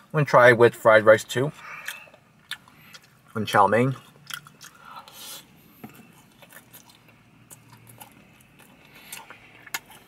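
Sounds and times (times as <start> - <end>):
person chewing noodles: 1.6 - 3.4, 4.0 - 10.0.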